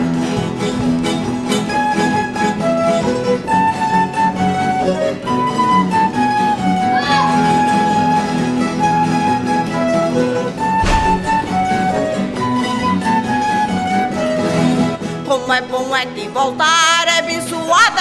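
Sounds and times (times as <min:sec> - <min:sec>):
plucked strings: 0:00.0 - 0:16.0
bowed violin melody: 0:07.0 - 0:14.4.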